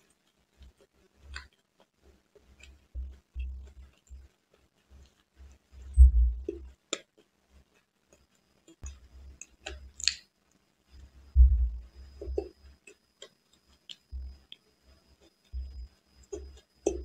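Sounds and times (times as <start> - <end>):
chewing and wet mouth sounds: 0.0 - 17.0
low thuds: 6.0 - 6.5, 11.4 - 12.5.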